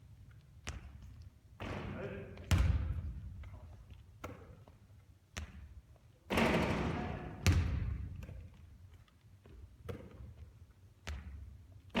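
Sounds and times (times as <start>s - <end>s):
basketball bouncing on court floor: 2.4s - 3.3s, 5.4s - 5.7s, 7.4s - 8.5s, 9.8s - 11.5s.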